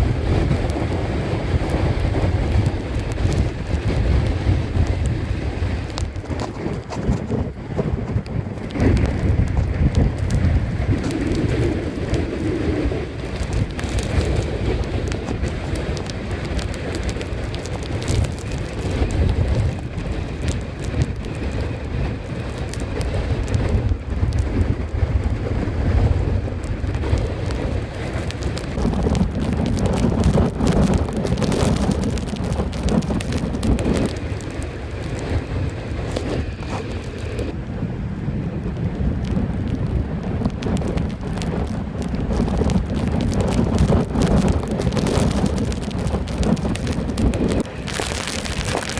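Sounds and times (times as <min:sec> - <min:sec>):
constant crackle: 0:00.0 - 0:48.9
heavy low rumble: 0:00.0 - 0:48.9
wind buffeting microphone: 0:00.0 - 0:48.9.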